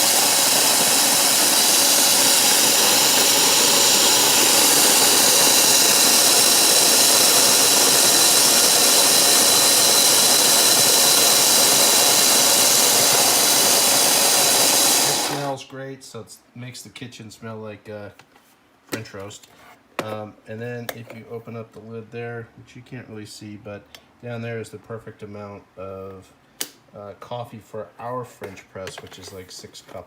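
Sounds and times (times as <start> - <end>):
coffee grinder grinding beans: 0.0 - 15.6.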